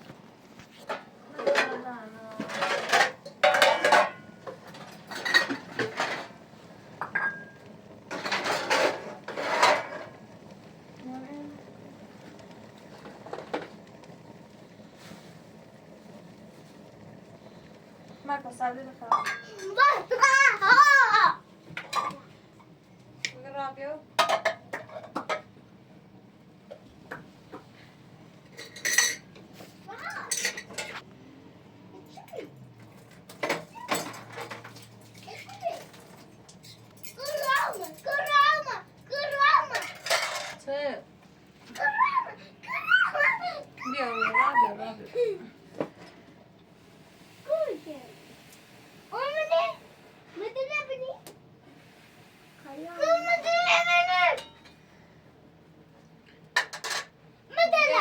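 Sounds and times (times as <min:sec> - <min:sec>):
dishes and pots clattering: 0:00.8 - 0:10.2, 0:19.1 - 0:19.9, 0:21.7 - 0:22.3, 0:24.2 - 0:25.5, 0:28.5 - 0:29.4, 0:30.0 - 0:31.0, 0:32.9 - 0:38.6, 0:39.3 - 0:40.7, 0:54.3 - 0:54.8, 0:56.6 - 0:57.2.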